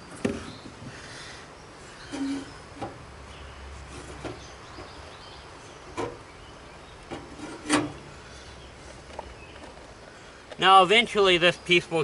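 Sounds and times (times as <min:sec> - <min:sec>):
mower hood knocks and clacks: 0:05.9 - 0:06.2.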